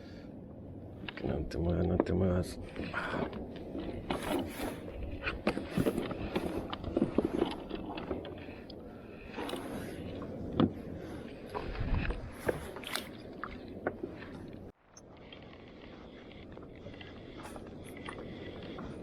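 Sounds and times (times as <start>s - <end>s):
knocks and scrapes on plastic kayak: 2.7s - 8.6s.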